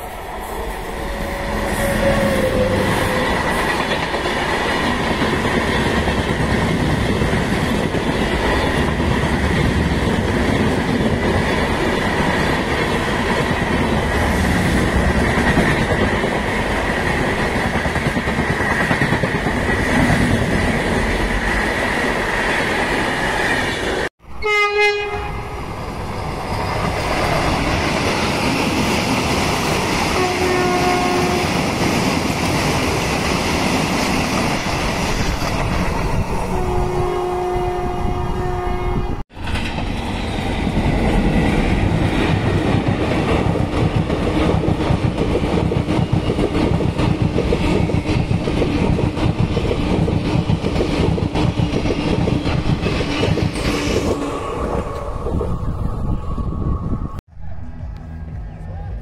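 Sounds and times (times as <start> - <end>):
train rumbling and clattering: 0.0 - 59.0
train horn blast: 0.8 - 3.2, 24.3 - 25.6, 30.1 - 31.7, 36.4 - 39.2.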